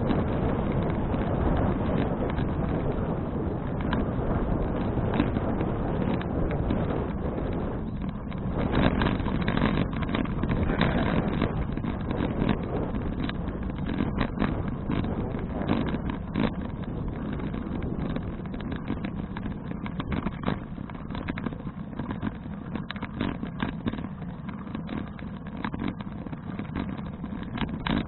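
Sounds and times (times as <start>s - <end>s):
bicycle rattles and knocks: 0.0s - 28.0s
wind rumbling on microphone: 0.0s - 28.0s.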